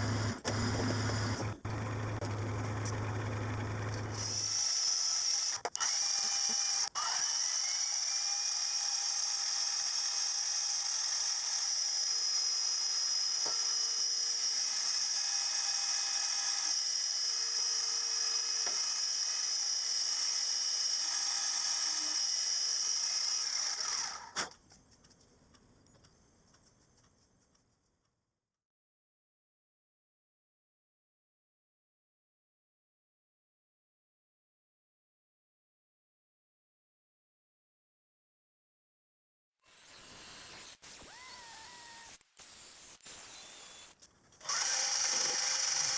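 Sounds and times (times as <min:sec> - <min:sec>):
machine tool motor whine: 0:00.0 - 0:24.6, 0:39.7 - 0:45.9.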